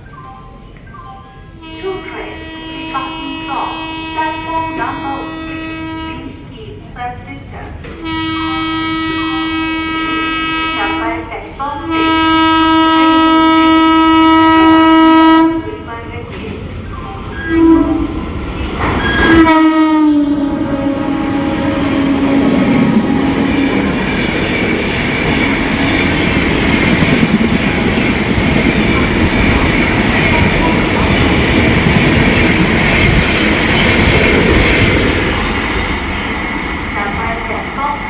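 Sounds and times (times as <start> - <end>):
train rumble and wheel clatter: 0.0 - 38.0
locomotive horn blasts: 1.6 - 6.4, 8.0 - 11.2, 11.8 - 15.8, 17.3 - 27.2.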